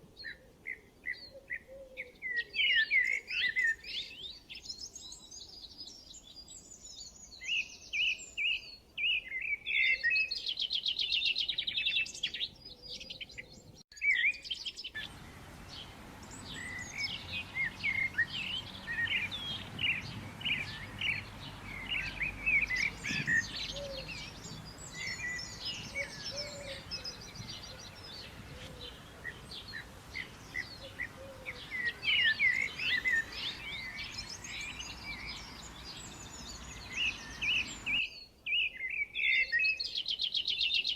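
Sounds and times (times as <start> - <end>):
faint background noise: 0.0 - 40.9
chorus of birds chirping: 0.2 - 40.9
birds calling: 15.0 - 38.1.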